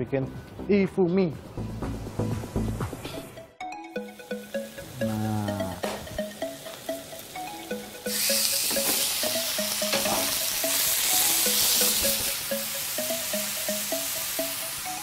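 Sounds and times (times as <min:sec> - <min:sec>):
background music: 0:00.0 - 0:15.0
food sizzling in hot oil: 0:06.4 - 0:15.0.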